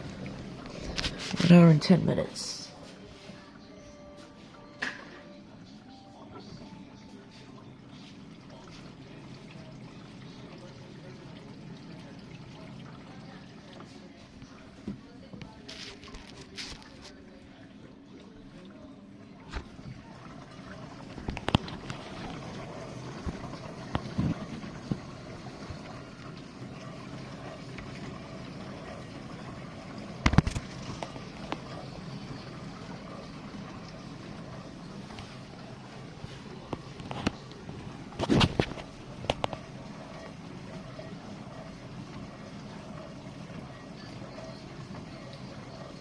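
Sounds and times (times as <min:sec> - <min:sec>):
dishwasher pump hum: 0:00.0 - 0:46.0
water spraying and sloshing: 0:07.4 - 0:17.2, 0:19.4 - 0:46.0.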